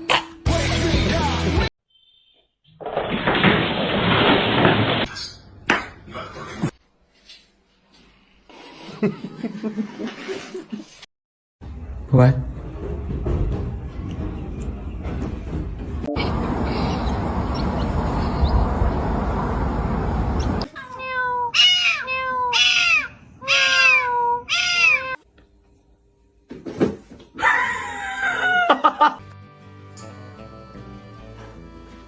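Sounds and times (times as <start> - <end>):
faint music: 11.6 - 17.0
cat meowing: 20.7 - 25.2
cat yowling: 20.8 - 25.2.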